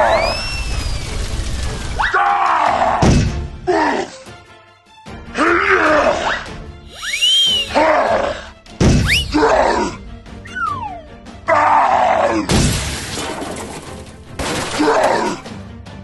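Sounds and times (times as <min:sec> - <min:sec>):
background music: 0:00.0 - 0:16.0
loud crash with shattering: 0:12.5 - 0:14.8.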